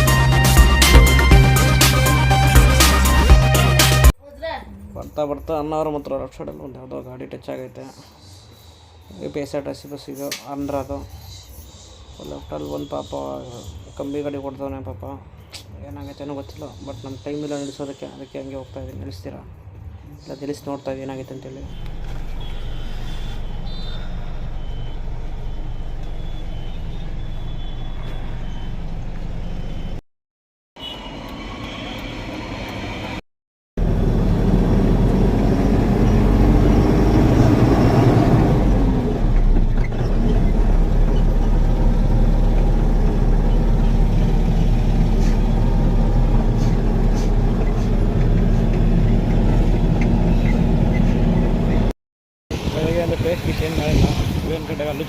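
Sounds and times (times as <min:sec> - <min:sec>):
truck engine running: 0:33.8 - 0:51.9.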